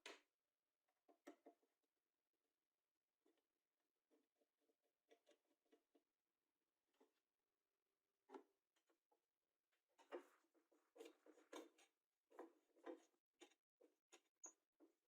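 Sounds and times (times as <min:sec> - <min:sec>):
faint small scrapes and taps: 0:10.0 - 0:15.0.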